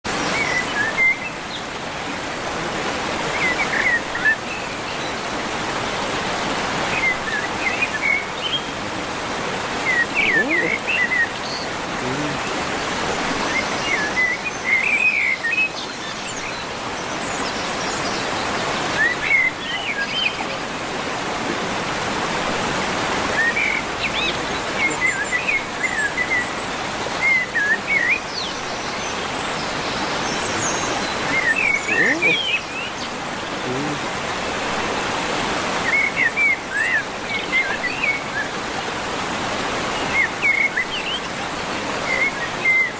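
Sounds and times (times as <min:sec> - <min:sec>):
small birds chirping: 0:06.8 - 0:22.1, 0:23.0 - 0:34.1.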